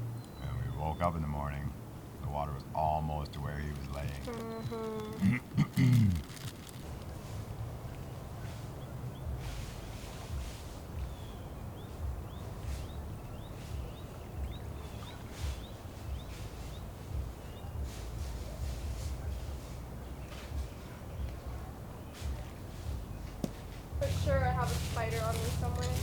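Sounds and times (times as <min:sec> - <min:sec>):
bird chirping: 0:00.0 - 0:26.0
rustles: 0:01.3 - 0:26.0
low rumble: 0:06.2 - 0:26.0.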